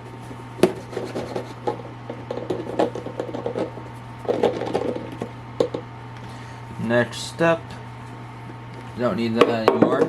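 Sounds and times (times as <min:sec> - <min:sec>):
rubbing and rustling: 0:00.0 - 0:05.3.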